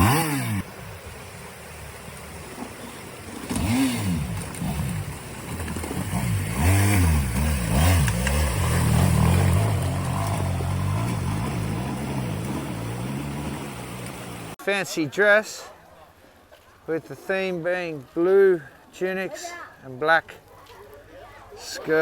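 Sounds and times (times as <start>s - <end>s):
motorbike engine revving: 0.0s - 0.8s, 2.6s - 14.6s.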